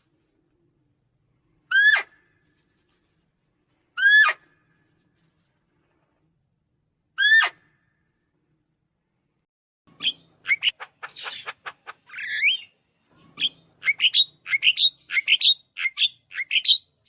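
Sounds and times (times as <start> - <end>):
bird chirping: 9.9 - 17.0.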